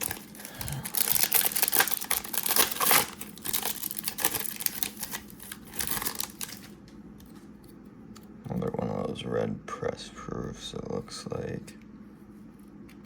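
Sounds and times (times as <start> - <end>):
trading cards crackling and rustling: 0.0 - 9.0.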